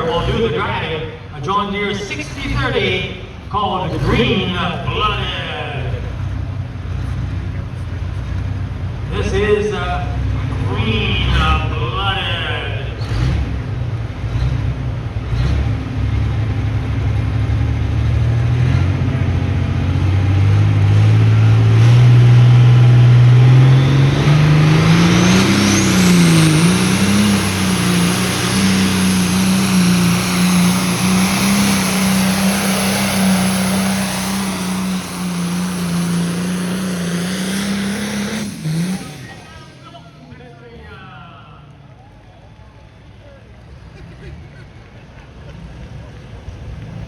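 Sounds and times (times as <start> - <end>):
tractor diesel engine revving: 0.0 - 41.0
high whine: 21.3 - 39.8.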